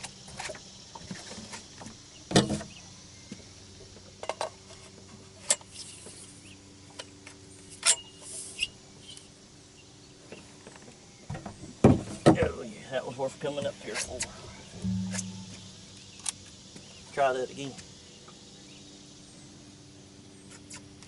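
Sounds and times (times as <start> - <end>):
faint steady hum: 12.9 - 20.4.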